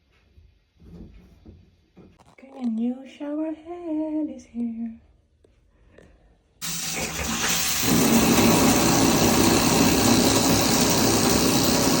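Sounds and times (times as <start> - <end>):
shower head spraying water: 6.6 - 12.0.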